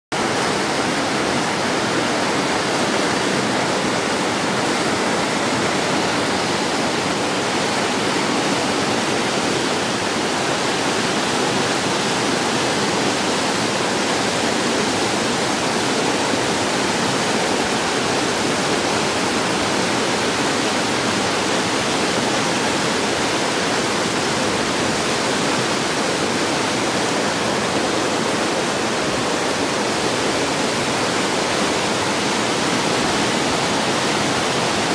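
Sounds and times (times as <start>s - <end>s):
river rushing: 0.1s - 34.9s.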